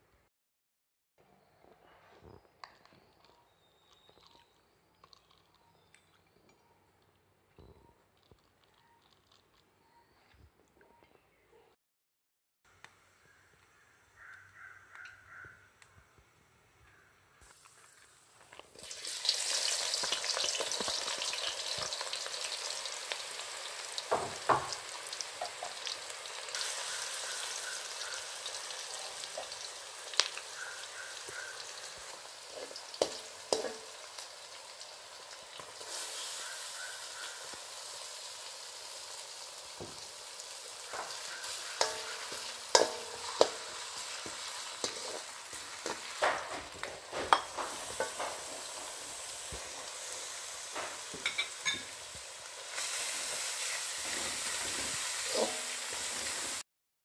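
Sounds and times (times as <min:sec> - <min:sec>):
onions sizzling in hot oil: 0:17.5 - 0:56.6
spatula scraping a wok: 0:30.8 - 0:34.2, 0:35.7 - 0:37.6, 0:40.5 - 0:52.0, 0:52.7 - 0:56.6.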